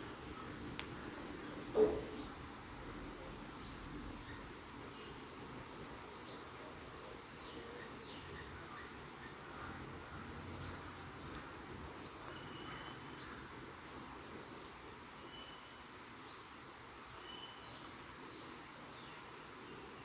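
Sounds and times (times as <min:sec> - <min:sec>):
faint bird chirps: 0:10.5 - 0:13.7, 0:15.1 - 0:20.0.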